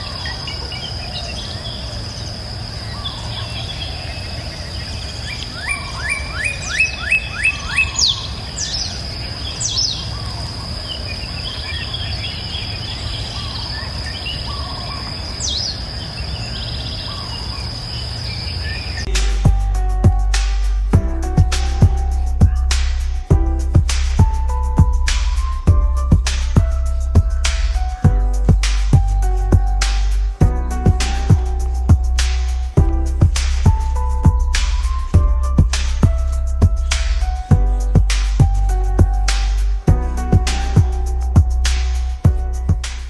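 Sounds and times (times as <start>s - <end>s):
birds calling: 0.0s - 43.0s
falling whistled bird calls: 0.0s - 43.0s
high-pitched insect drone: 0.0s - 43.0s
bird rising notes: 18.4s - 43.0s
low steady rumble: 19.1s - 43.0s.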